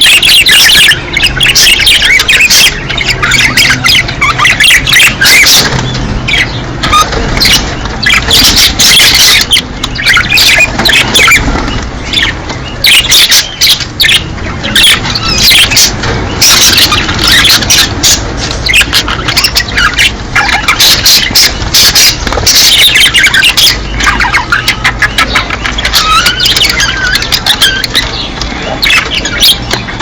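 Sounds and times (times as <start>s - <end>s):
budgerigars chattering and squawking: 0.0s - 30.0s.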